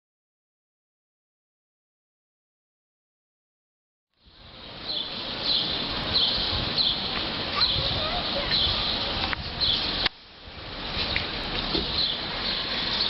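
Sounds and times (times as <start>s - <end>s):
wind rumbling on microphone: 4.2s - 13.0s
small bird chirping: 4.9s - 10.0s.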